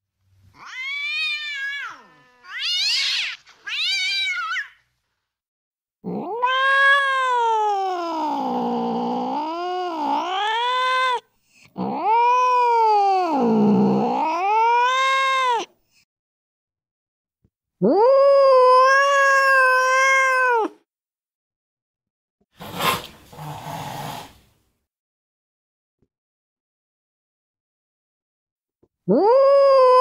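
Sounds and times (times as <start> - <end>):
cat yowling: 0.6 - 4.8, 6.0 - 11.2, 11.8 - 15.7, 17.8 - 20.8, 29.1 - 30.0.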